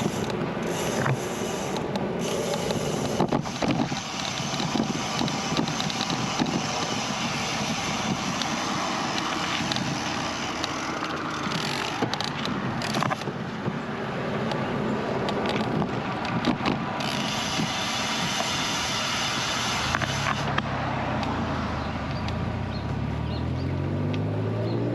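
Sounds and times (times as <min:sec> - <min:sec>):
wind rushing over microphone: 0:00.0 - 0:23.4
bicycle road noise: 0:00.0 - 0:24.9
short clicks and rattles: 0:08.3 - 0:13.3.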